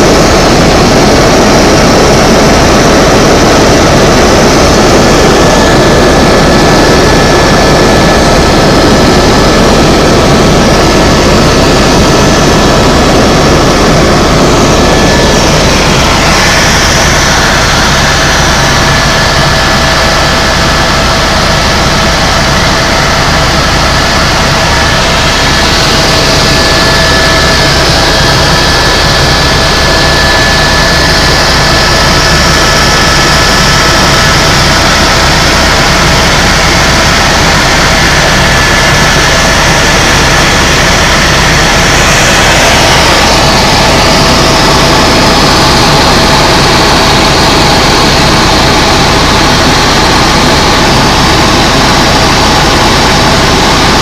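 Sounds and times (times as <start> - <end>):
helicopter turbine and rotor noise: 0.0 - 54.0.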